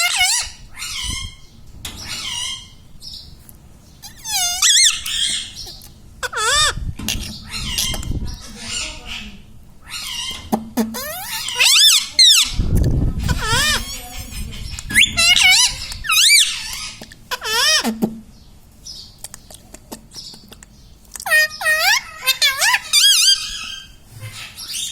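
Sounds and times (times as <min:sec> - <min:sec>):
parrot squawking and whistling: 0:00.0 - 0:01.4, 0:04.0 - 0:08.9, 0:09.9 - 0:12.6, 0:13.2 - 0:14.0, 0:14.8 - 0:17.9, 0:21.2 - 0:24.9.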